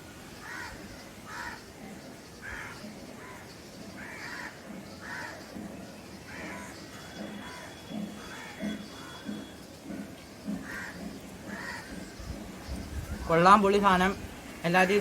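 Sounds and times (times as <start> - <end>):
crows cawing: 0.4 - 1.7, 2.4 - 5.5, 6.3 - 9.5, 10.6 - 12.3.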